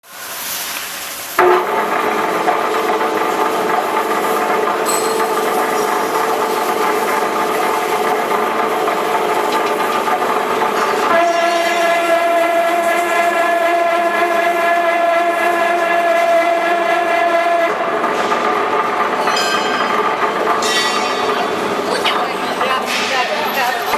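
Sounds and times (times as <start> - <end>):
machine mechanical whine: 1.4 - 15.8.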